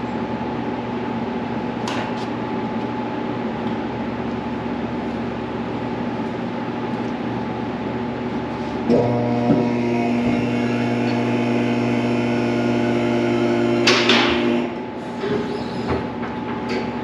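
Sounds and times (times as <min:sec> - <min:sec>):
machine humming: 0:07.6 - 0:15.1.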